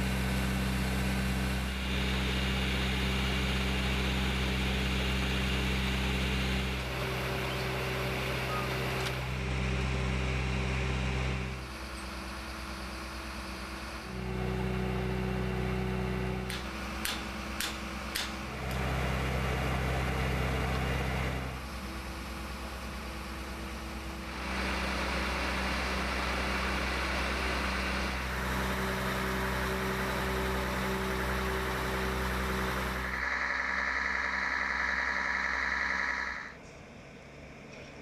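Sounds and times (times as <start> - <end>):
truck engine running: 0.0 - 38.0.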